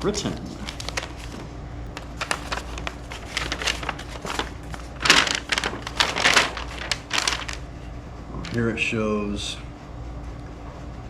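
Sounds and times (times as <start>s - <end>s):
paper rustling and crinkling: 0.0s - 8.7s.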